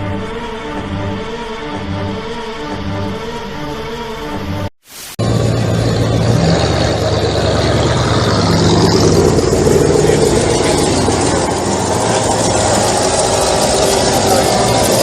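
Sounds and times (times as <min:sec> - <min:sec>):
engine running loudly: 0:05.2 - 0:15.0.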